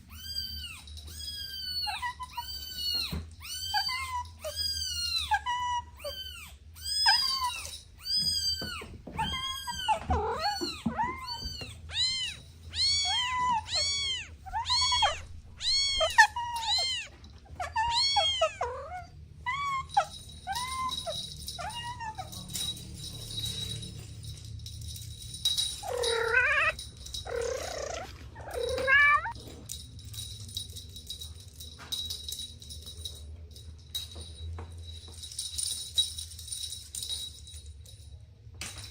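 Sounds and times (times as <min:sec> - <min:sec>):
kitten meowing: 0:00.1 - 0:21.0, 0:25.8 - 0:29.4.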